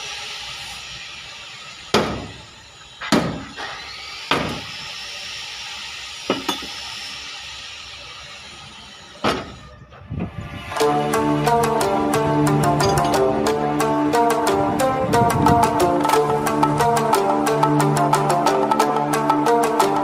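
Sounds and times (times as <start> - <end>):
steady hiss: 0.0 - 3.7, 4.5 - 19.9
hammer striking sheet metal: 1.9 - 2.4, 3.0 - 4.7.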